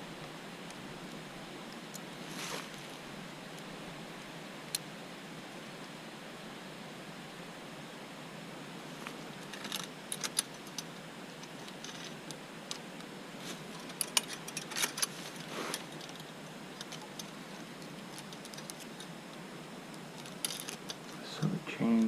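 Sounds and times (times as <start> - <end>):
bicycle chain clinking and rattling: 20.2 - 21.0.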